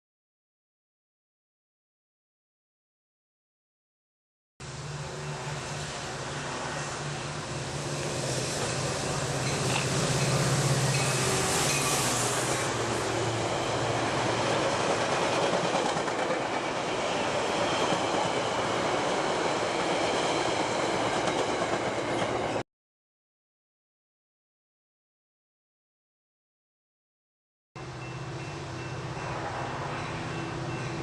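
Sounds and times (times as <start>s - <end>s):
train wheel and rail noise: 4.6s - 22.6s, 27.8s - 31.0s.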